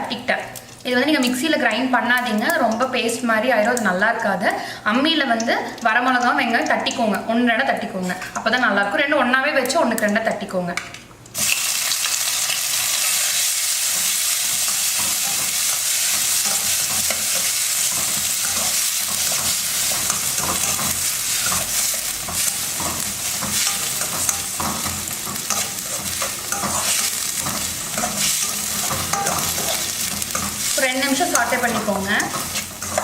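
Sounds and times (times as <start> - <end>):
onion sizzling in oil: 11.3 - 33.0
spoon scraping pan: 12.8 - 33.0.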